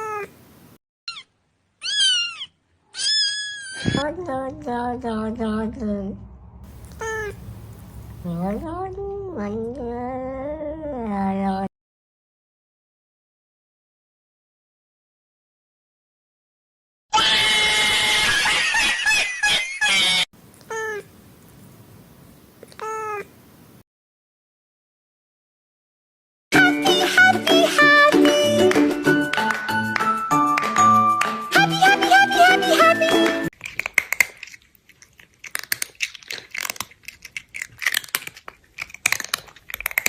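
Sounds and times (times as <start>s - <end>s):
cat meowing: 1.1s - 4.0s, 6.7s - 7.8s, 20.6s - 21.1s
cat yowling: 1.1s - 4.0s, 6.7s - 8.0s, 20.7s - 21.1s
quick sharp clicks and crunches: 33.6s - 40.0s.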